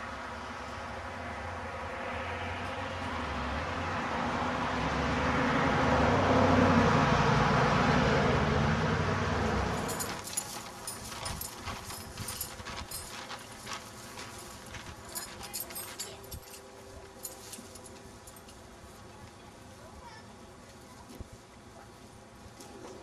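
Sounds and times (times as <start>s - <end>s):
vehicle engine passing by: 1.1s - 12.5s.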